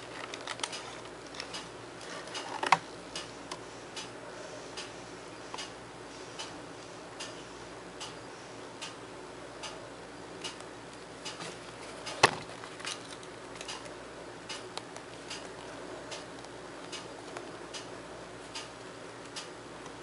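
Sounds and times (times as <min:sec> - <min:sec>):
low steady hum: 0:00.0 - 0:20.0
regular ticking: 0:13.6 - 0:17.9.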